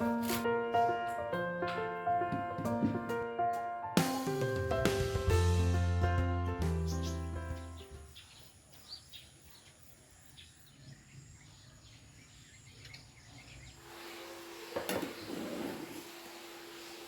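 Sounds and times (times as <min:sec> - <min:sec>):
background music: 0:00.0 - 0:08.0
bird chirps: 0:06.8 - 0:13.8.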